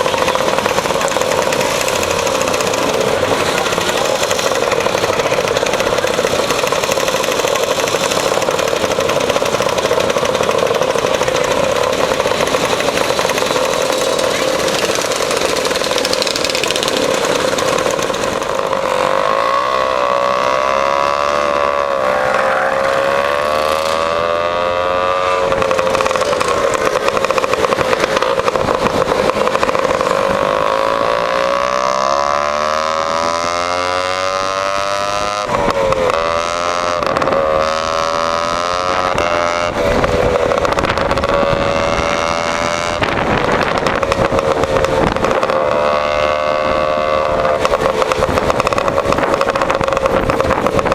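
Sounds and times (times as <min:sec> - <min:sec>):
scooter engine accelerating: 0:00.0 - 0:50.9.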